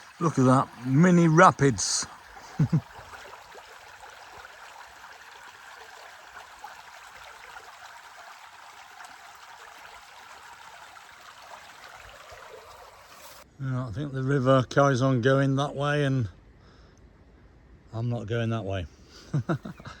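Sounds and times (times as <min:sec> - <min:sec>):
water running over stones: 0:00.0 - 0:13.4.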